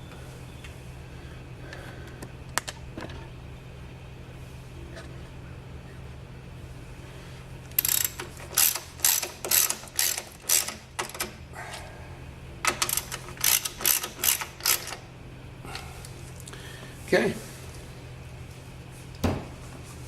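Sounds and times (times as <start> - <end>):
socket ratchet clicking: 7.7 - 11.3, 12.6 - 15.0.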